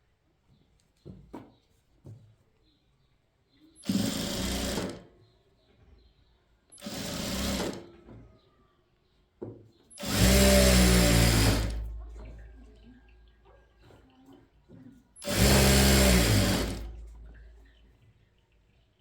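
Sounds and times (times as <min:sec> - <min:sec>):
sewing machine stitching: 0:03.8 - 0:05.2, 0:06.7 - 0:08.0, 0:09.9 - 0:12.3, 0:15.2 - 0:17.5.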